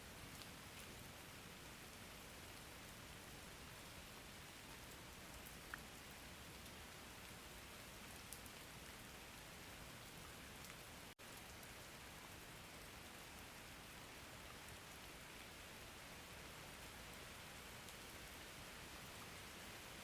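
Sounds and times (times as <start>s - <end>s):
raindrop ticks: 4.5s - 6.8s, 10.0s - 11.9s.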